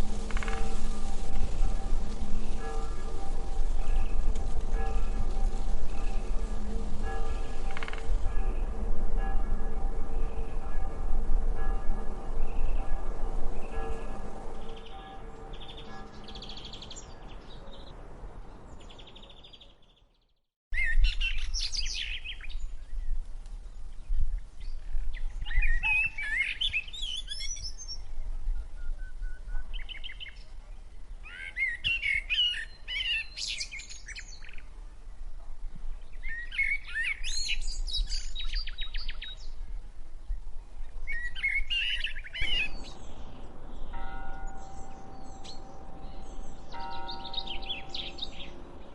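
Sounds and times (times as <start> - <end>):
steady low rumble: 0.0 - 16.4, 41.6 - 48.9
bird singing: 0.0 - 23.2, 23.8 - 35.2, 35.8 - 48.9.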